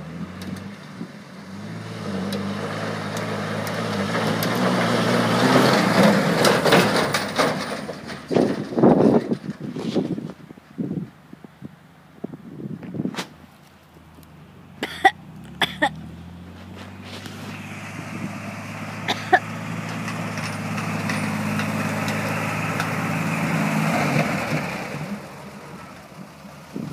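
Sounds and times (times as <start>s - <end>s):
tyres spinning on dirt: 0.0s - 10.5s, 15.1s - 26.9s
engine revving hard: 1.5s - 7.2s, 15.2s - 25.2s.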